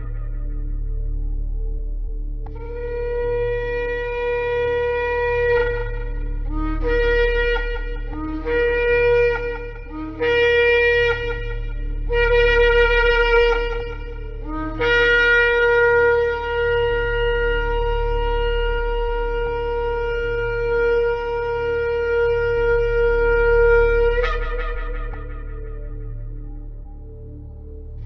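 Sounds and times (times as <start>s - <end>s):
shofar blasts: 2.6s - 27.0s.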